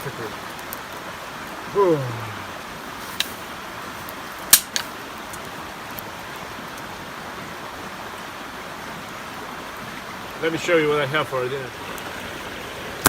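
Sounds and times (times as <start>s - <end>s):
campfire popping and crackling: 0.0s - 8.2s, 10.3s - 13.0s
river rushing: 0.0s - 13.0s.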